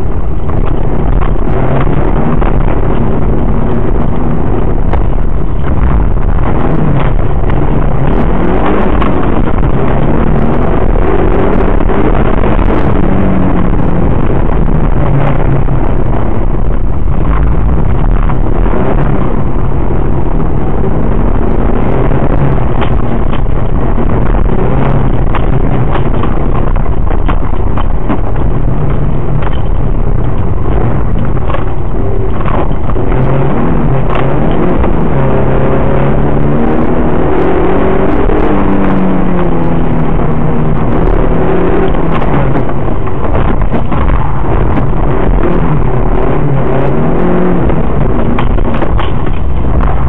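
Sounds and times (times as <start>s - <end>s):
car engine revving: 0.0s - 50.0s
knocks and rattles: 0.0s - 50.0s
road and tyre noise: 0.0s - 50.0s.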